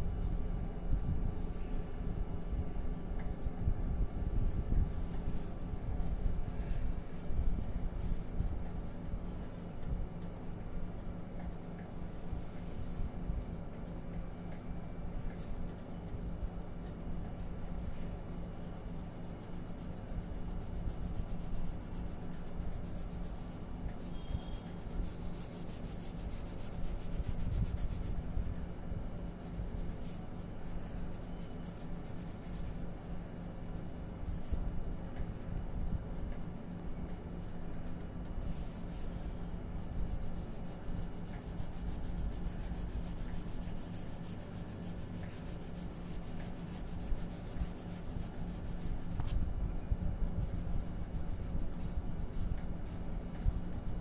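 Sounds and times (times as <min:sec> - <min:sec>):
colouring on paper: 0:17.7 - 0:35.2, 0:36.3 - 0:49.3.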